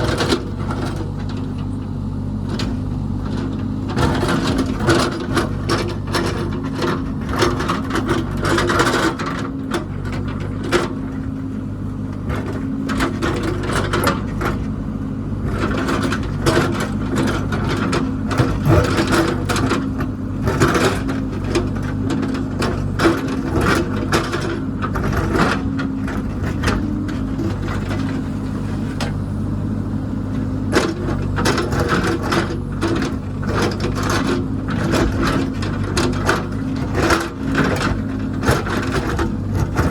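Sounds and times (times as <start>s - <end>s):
machinery knocks and scraping: 0.0s - 29.4s, 30.2s - 39.9s
diesel engine running: 0.0s - 39.9s.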